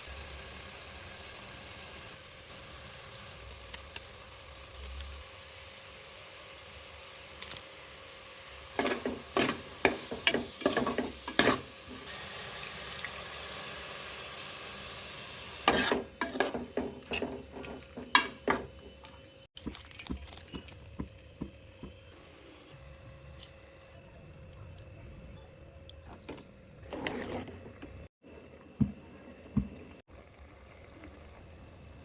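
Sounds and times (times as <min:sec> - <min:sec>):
food sizzling in a pot: 0:00.0 - 0:18.7
spoon scraping a pot: 0:08.8 - 0:11.7, 0:15.7 - 0:18.9, 0:26.3 - 0:28.1.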